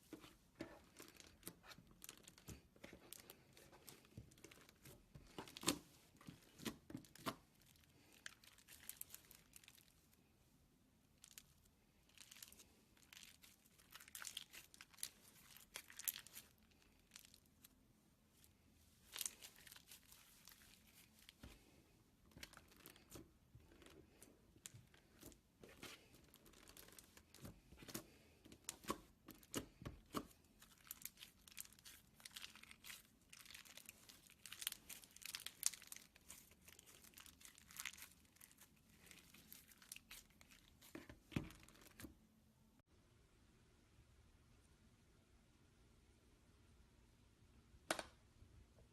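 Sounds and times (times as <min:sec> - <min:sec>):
slime crackling and popping: 0:12.1 - 0:17.7, 0:22.3 - 0:42.1.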